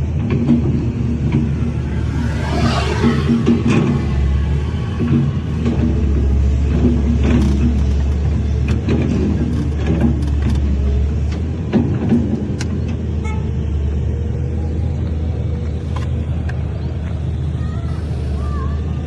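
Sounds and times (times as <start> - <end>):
heavy diesel engine droning: 0.0 - 19.0
clanks and knocks: 5.0 - 13.0.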